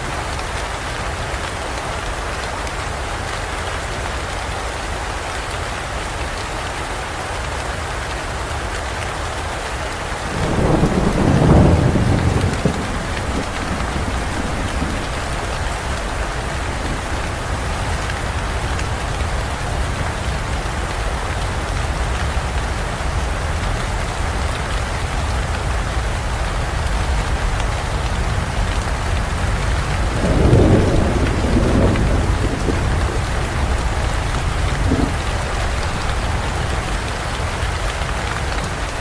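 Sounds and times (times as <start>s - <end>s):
heavy rain falling: 0.0s - 39.0s
thunder rumbling: 10.3s - 20.7s, 27.4s - 39.0s.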